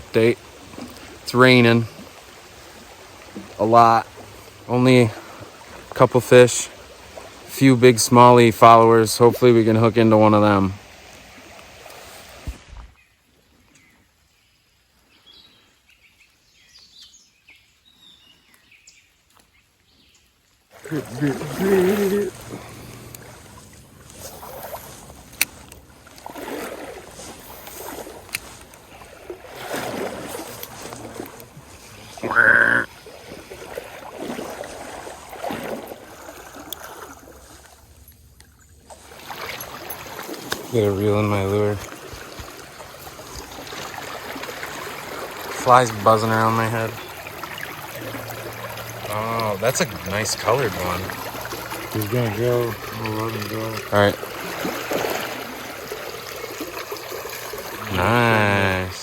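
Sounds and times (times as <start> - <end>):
stream water sloshing: 0.0 - 13.9, 18.4 - 59.0
heavy rain hissing: 20.8 - 25.3.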